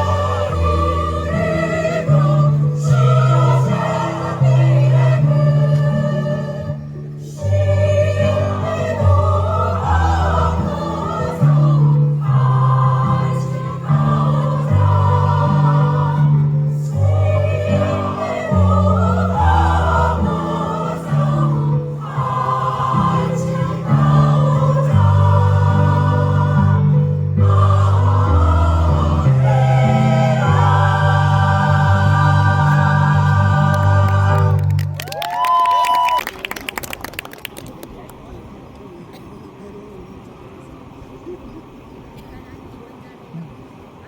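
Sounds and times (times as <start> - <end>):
choir singing: 0.0 - 34.9.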